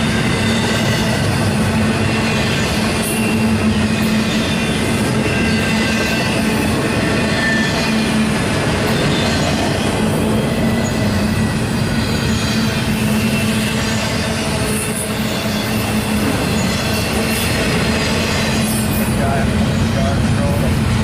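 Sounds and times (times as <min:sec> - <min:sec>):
train wheels rumbling on rails: 0:00.0 - 0:21.0
faint high wheel squeal: 0:02.0 - 0:08.2, 0:10.5 - 0:20.6.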